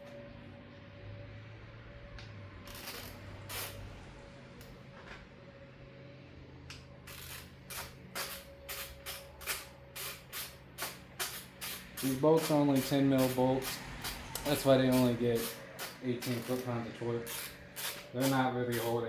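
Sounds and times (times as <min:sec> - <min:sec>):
torque wrench ratcheting: 0:02.7 - 0:03.8, 0:07.1 - 0:19.0.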